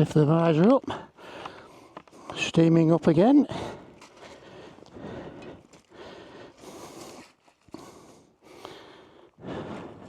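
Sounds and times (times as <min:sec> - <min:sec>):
person breathing heavily: 0:00.9 - 0:02.4, 0:03.5 - 0:10.0.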